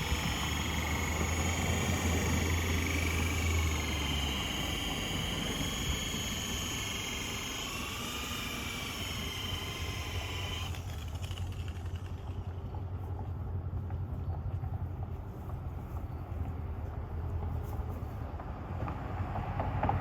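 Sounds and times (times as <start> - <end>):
electric polisher motor whine: 0.0 - 11.8.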